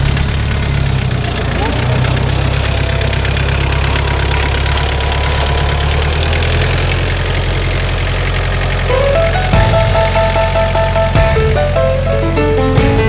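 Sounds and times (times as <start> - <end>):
tractor engine running: 0.0 - 13.0
background music: 8.9 - 13.0.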